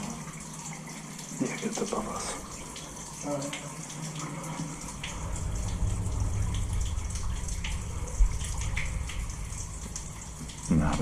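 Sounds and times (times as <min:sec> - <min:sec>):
water trickling and dripping: 0:00.0 - 0:11.0
steady low rumble: 0:04.7 - 0:11.0.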